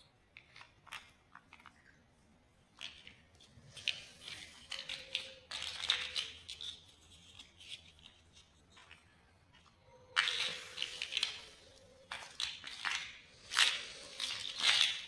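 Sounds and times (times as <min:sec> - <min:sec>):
plastic bricks clicking together: 0:03.8 - 0:08.2, 0:12.1 - 0:15.0.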